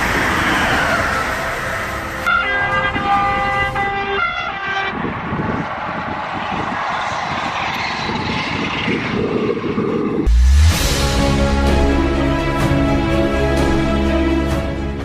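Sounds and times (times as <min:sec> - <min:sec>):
train rushing by: 0:00.0 - 0:15.0
train horn blasts: 0:02.2 - 0:05.1.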